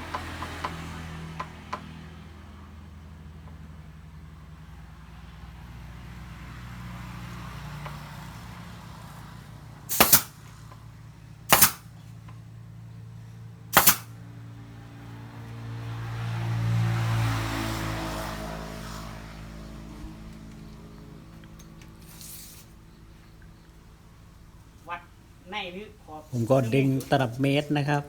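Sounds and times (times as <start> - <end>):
nail gun firing into wood: 9.9 - 10.4, 11.5 - 11.9, 13.8 - 14.1.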